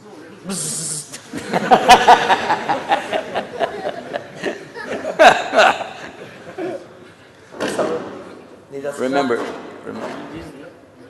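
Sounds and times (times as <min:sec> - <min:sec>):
audience laughing and chattering: 0:00.3 - 0:07.5.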